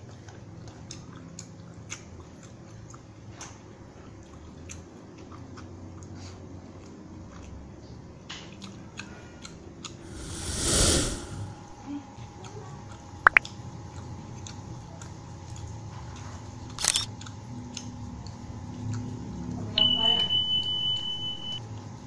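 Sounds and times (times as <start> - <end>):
whoosh sound effect: 10.0 - 11.6.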